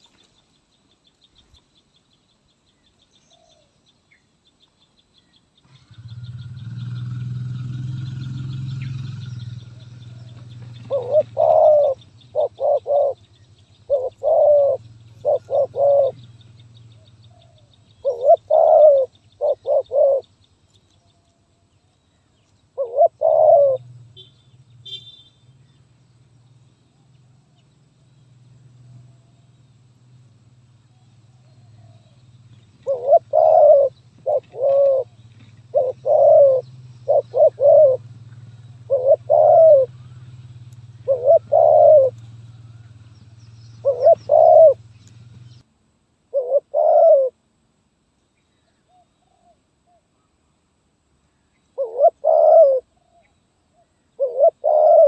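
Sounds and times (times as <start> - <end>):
dove cooing: 5.7 - 20.3, 22.8 - 23.9, 30.9 - 40.4, 41.0 - 43.0, 43.8 - 44.9, 46.3 - 47.4, 48.9 - 50.0, 51.8 - 55.0.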